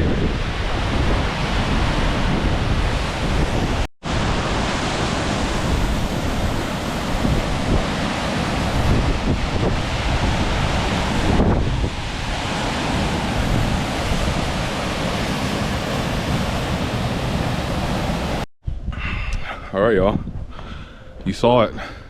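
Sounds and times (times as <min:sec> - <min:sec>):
waterfall rushing: 0:03.0 - 0:18.4.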